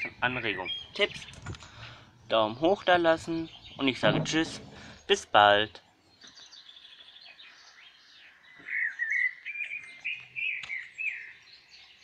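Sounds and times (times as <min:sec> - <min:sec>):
songbird whistling phrases: 0:00.0 - 0:01.4, 0:06.3 - 0:11.5
faint bird chirping: 0:00.0 - 0:12.0.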